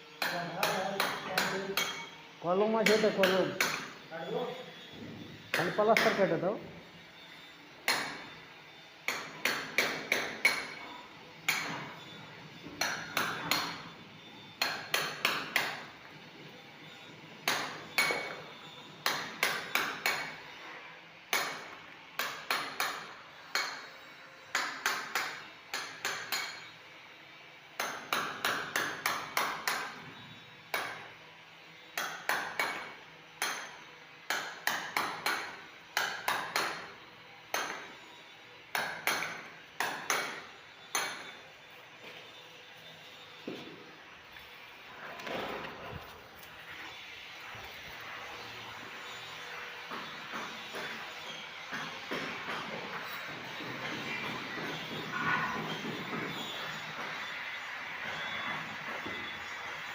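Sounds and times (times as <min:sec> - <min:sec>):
hammer chipping plaster: 0:00.2 - 0:02.0, 0:07.8 - 0:08.4, 0:09.0 - 0:10.9, 0:11.5 - 0:13.9, 0:14.6 - 0:16.0, 0:17.4 - 0:20.4, 0:21.3 - 0:23.9, 0:24.5 - 0:26.7, 0:27.8 - 0:30.0, 0:32.0 - 0:38.0, 0:38.7 - 0:41.4, 0:49.8 - 0:59.9.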